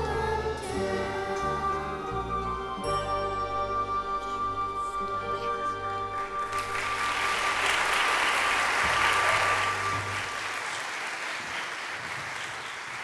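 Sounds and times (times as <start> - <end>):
song's held note and bass: 0.0 - 6.8
audience applauding: 6.2 - 13.0.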